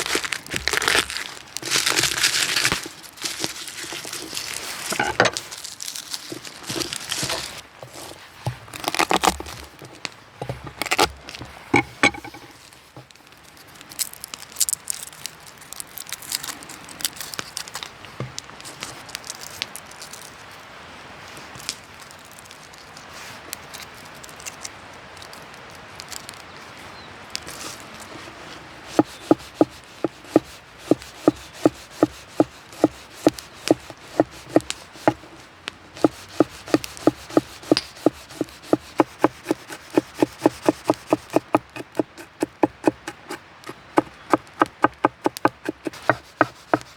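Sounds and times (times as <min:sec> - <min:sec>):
light clicks and rustling: 0:00.5 - 0:20.6, 0:21.3 - 0:28.2
knife chopping on wooden board: 0:07.2 - 0:09.7, 0:28.9 - 0:35.3, 0:36.0 - 0:46.9.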